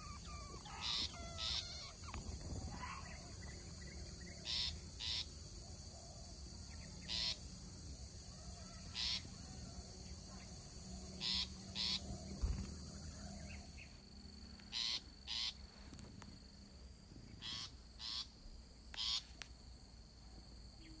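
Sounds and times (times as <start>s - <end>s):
harsh bird calls: 0.0s - 5.3s, 8.6s - 9.4s, 11.2s - 13.9s, 14.7s - 15.6s.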